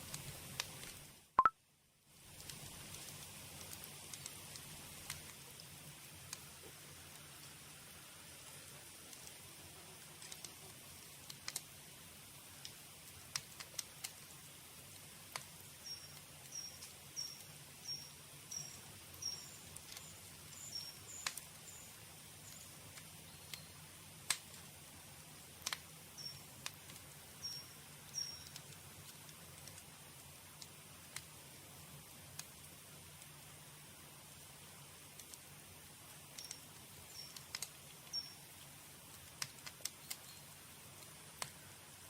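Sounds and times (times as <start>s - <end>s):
campfire crackling and popping: 0.0s - 1.3s, 2.1s - 42.0s
fire hiss: 0.0s - 1.3s, 2.0s - 42.0s
bird chirping: 15.8s - 22.7s, 27.4s - 28.6s, 38.1s - 38.4s.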